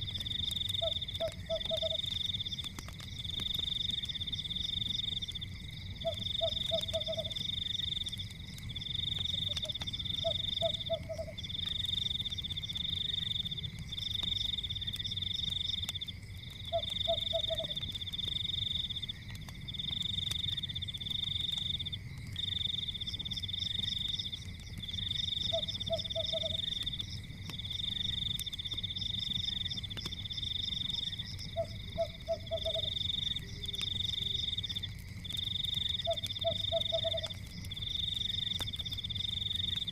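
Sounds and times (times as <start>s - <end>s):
frogs trilling: 0.0s - 39.9s
frog croaking: 0.7s - 2.1s, 6.0s - 7.4s, 9.4s - 11.5s, 16.7s - 17.8s, 25.5s - 26.8s, 30.9s - 34.6s, 35.9s - 37.4s.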